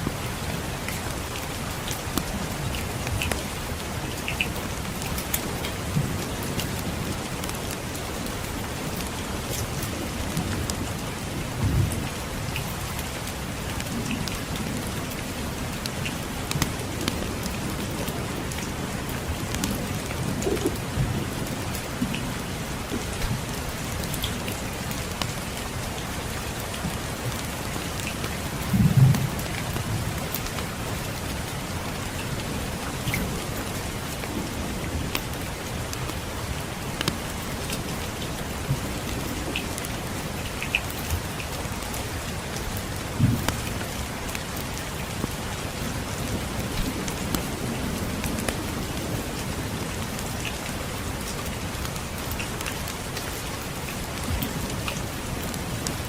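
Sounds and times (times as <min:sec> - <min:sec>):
rain pattering: 0:00.0 - 0:56.0
distant thunder rumbles: 0:43.2 - 0:43.8.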